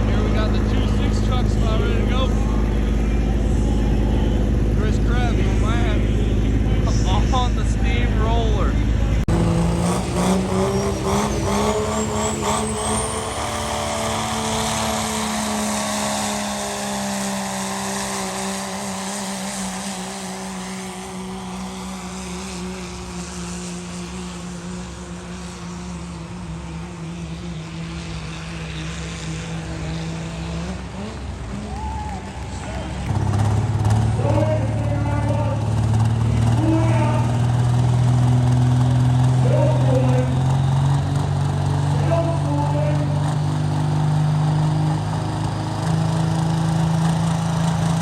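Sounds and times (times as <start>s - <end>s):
diesel engine at high revs: 0.0s - 48.0s.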